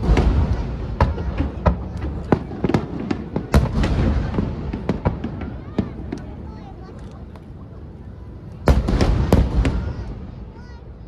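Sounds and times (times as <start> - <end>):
low rumbling firework booms: 0.0 - 6.5, 8.6 - 10.6
firework sharp cracks: 0.0 - 7.0, 8.6 - 10.7.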